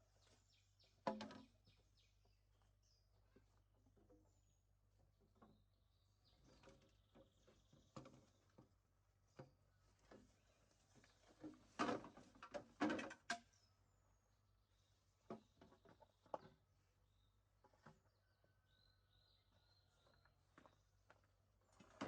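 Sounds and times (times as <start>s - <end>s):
small birds chirping: 0.0s - 11.5s, 13.4s - 21.5s
faint knocks and rustles: 6.4s - 13.6s.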